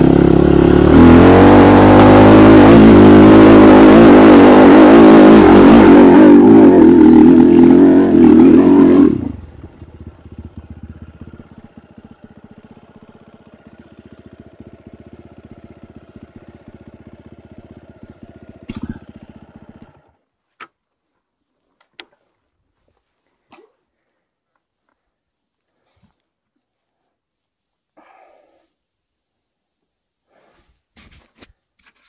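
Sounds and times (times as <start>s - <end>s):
motorcycle engine revving and idling: 0.0s - 20.2s.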